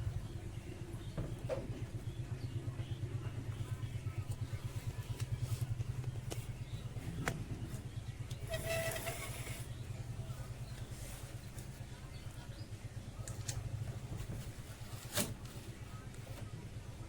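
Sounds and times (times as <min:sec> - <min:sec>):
motor humming: 0:06.2 - 0:11.4.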